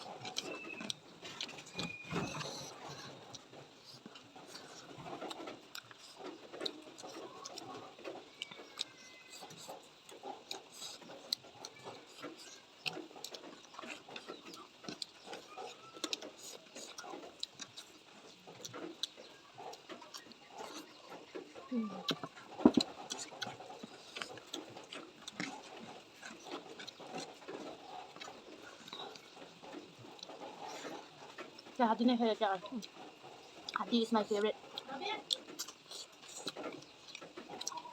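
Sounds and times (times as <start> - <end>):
person chewing food: 0.0 - 37.9
wet mouth clicks and smacks: 22.1 - 31.8.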